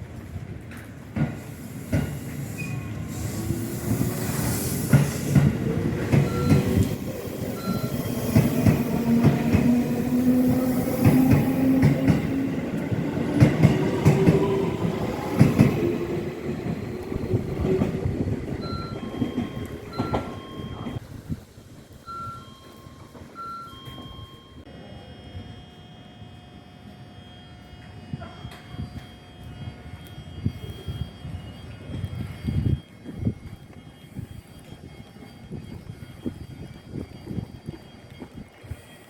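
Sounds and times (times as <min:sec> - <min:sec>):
train wheels rumbling: 0:00.0 - 0:22.1.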